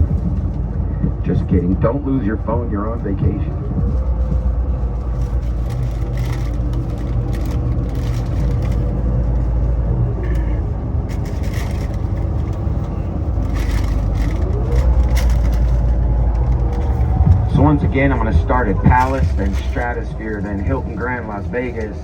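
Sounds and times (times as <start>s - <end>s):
bus engine: 0.0s - 22.0s
road rumble: 0.0s - 22.0s.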